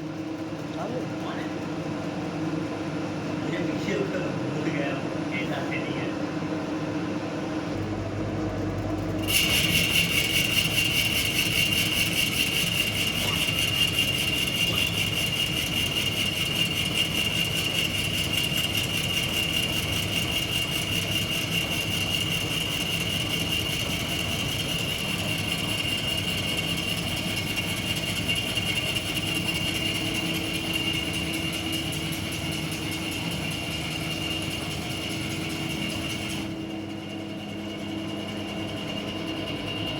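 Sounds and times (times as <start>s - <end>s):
low machine hum: 0.0s - 39.9s
router spindle whining: 9.2s - 39.9s.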